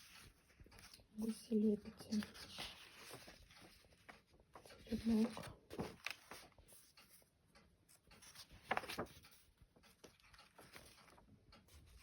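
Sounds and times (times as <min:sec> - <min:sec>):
book pages rustling: 0:00.0 - 0:12.0.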